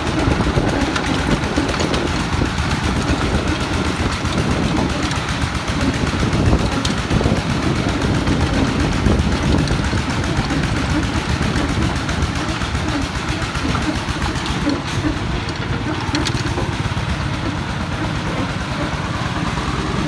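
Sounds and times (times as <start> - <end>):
diesel engine knocking: 0.0 - 20.0.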